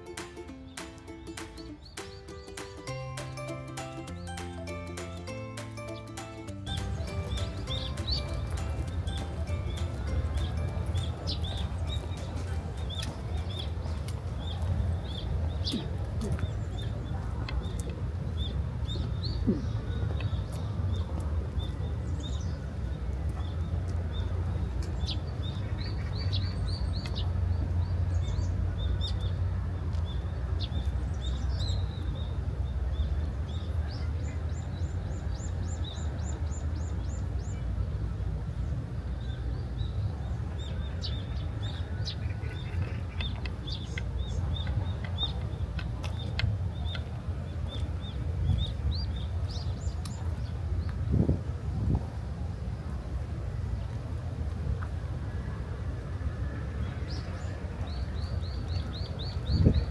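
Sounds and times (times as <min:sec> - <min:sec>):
bird trill: 0:00.4 - 0:13.9
small birds chirping: 0:06.7 - 0:37.7, 0:39.2 - 0:51.1.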